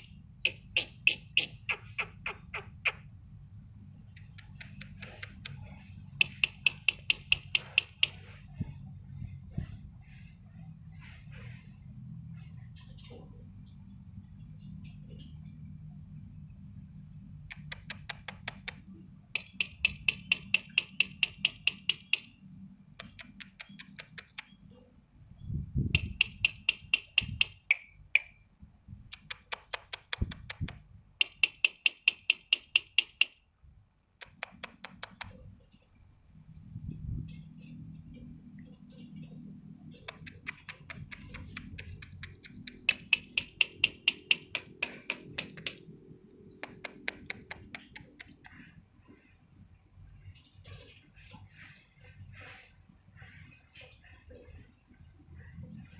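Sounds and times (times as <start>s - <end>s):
bird singing rapid sharp notes: 17.5s - 22.4s.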